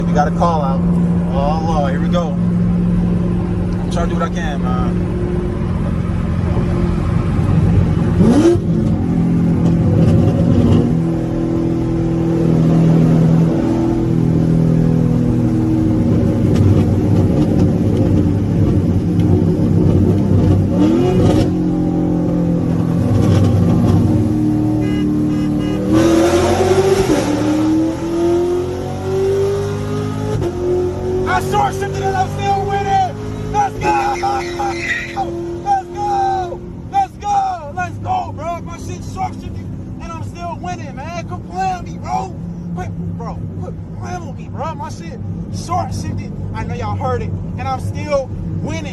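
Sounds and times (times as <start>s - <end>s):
car engine revving hard: 1.1s - 36.6s.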